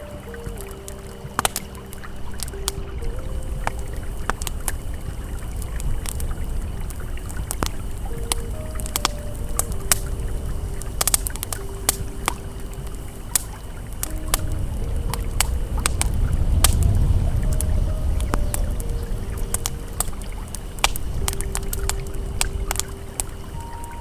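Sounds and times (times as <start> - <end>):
campfire crackling and popping: 0.0 - 24.0
river water flowing: 0.0 - 24.0
soft ambient music: 0.0 - 24.0.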